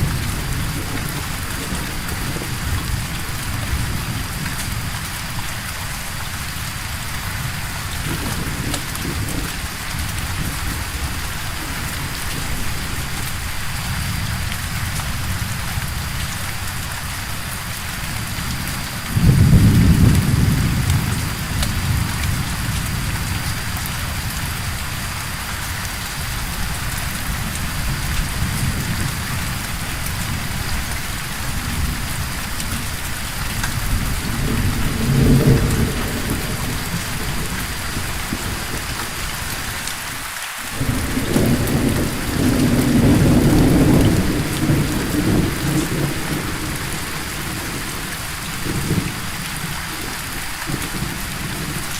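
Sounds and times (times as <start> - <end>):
steady rain falling: 0.0 - 51.9
thunderclap: 18.4 - 24.7, 32.6 - 39.6, 40.7 - 50.0.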